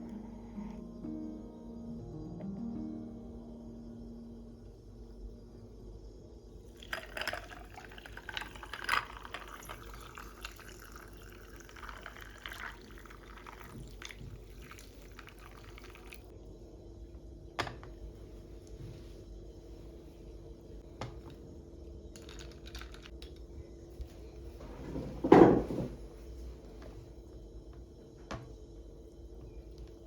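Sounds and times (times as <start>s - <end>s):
liquid pouring: 6.7s - 16.3s.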